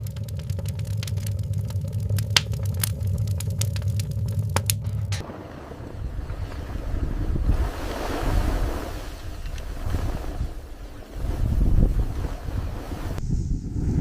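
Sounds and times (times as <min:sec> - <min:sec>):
wood fire crackling and popping: 0:00.0 - 0:05.2, 0:08.8 - 0:12.3
low steady rumble: 0:00.0 - 0:14.0.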